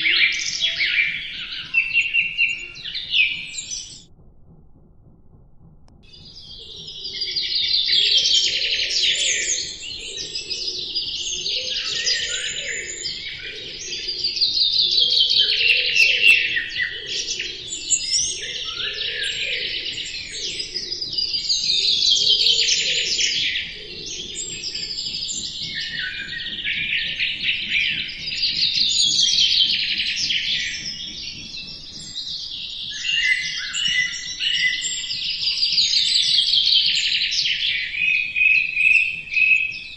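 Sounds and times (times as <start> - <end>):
songbird trilling: 0.0 - 4.0, 6.1 - 39.9.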